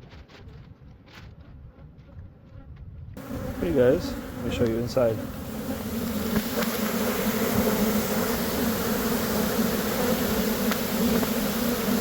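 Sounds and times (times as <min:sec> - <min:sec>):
bees buzzing: 0:03.2 - 0:12.0.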